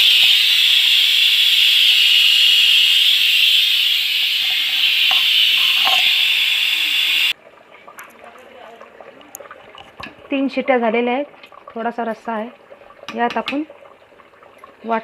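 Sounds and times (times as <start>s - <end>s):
pressure cooker whistling: 0.0s - 7.4s.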